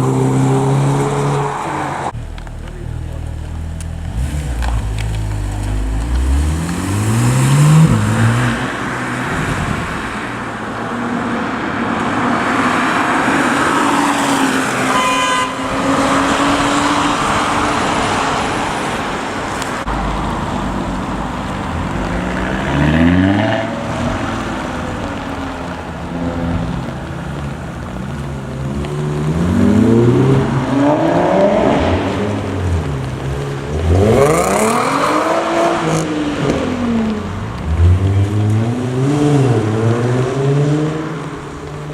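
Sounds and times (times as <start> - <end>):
car engines accelerating: 0.0 - 41.9.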